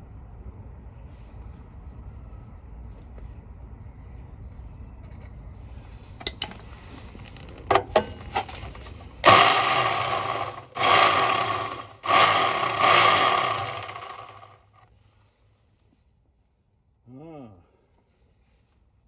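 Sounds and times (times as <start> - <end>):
electric drill drilling steel: 7.7 - 14.6.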